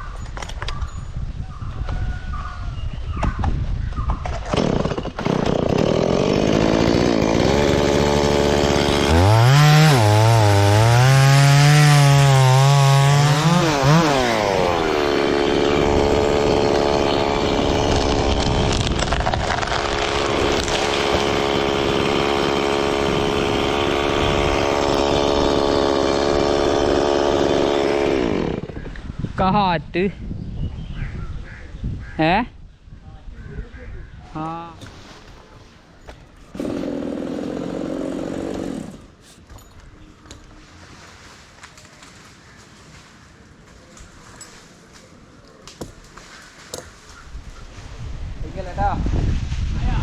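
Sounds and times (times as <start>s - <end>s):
chainsaw cutting wood: 4.4s - 28.9s, 36.5s - 40.5s.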